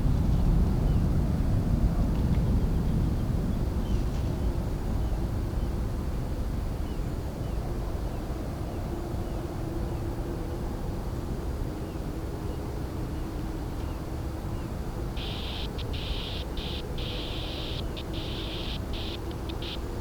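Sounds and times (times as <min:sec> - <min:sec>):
faint steady whine: 0:15.0 - 0:20.0
jet engines rumbling: 0:15.1 - 0:20.0.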